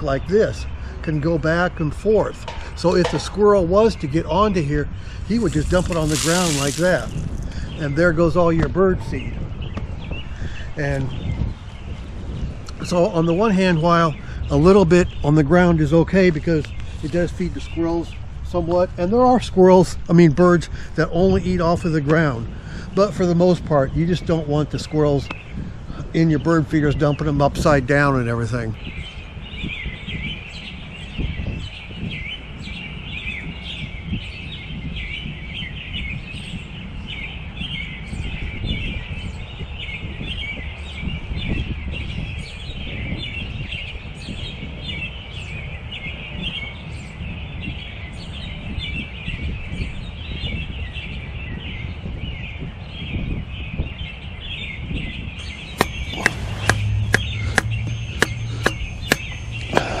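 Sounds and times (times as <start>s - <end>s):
small birds chirping: 0.0s - 60.0s
sharp knocks: 2.4s - 3.4s, 55.8s - 60.0s.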